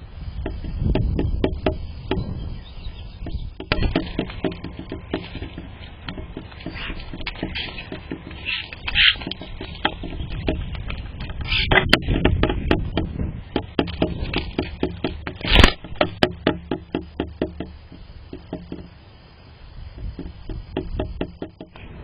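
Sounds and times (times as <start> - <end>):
loud knock: 0.4 - 2.4, 11.7 - 18.9, 20.0 - 21.8
tapping and scraping: 0.4 - 2.4, 3.2 - 19.0, 20.0 - 21.9.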